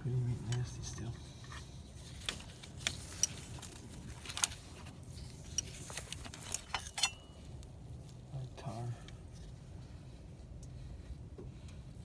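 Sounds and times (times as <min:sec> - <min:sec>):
metal tool clicking and scraping: 0:05.5 - 0:07.3.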